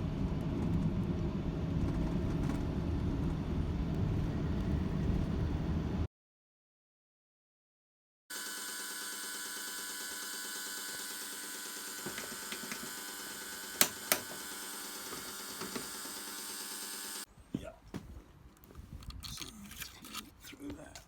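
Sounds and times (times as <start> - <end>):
steady mechanical hum: 0.0 - 6.1.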